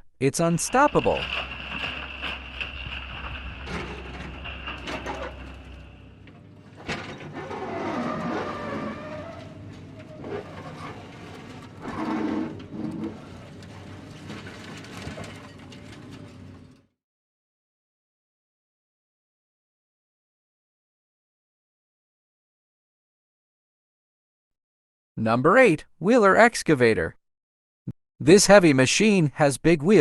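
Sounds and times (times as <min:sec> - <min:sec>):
excavator engine running: 0:00.6 - 0:06.9
machine clanking and scraping: 0:00.6 - 0:16.8
machine knocks: 0:00.7 - 0:06.4.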